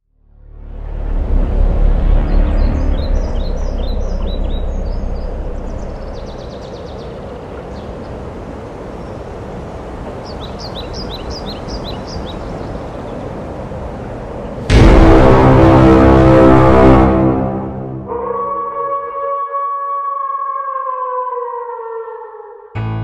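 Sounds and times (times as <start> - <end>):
steady background rush: 0.6 - 7.6, 11.0 - 18.2
small birds chirping: 2.6 - 8.2, 10.2 - 13.4.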